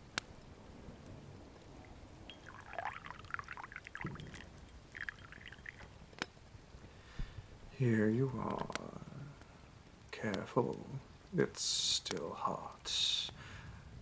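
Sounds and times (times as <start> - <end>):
tea pouring into cup: 2.3 - 5.9.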